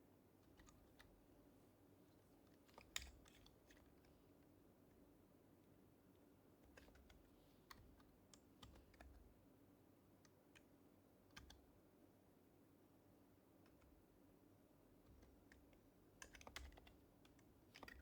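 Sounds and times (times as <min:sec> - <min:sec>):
soft keyboard typing clicks: 0:00.4 - 0:01.2, 0:02.5 - 0:04.2, 0:06.6 - 0:09.4, 0:10.2 - 0:11.7, 0:13.6 - 0:14.0, 0:15.0 - 0:18.0.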